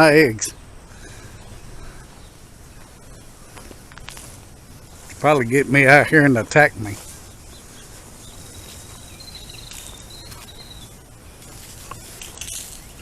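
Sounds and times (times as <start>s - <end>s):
high-pitched insect trill: 2.4s - 13.0s
faint clicks: 3.5s - 4.4s.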